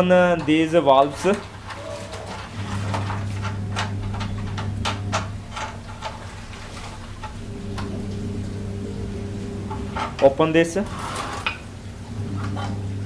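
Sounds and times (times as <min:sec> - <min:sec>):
clicks and metallic knocks: 0:00.3 - 0:06.2
steady low hum: 0:01.5 - 0:13.0.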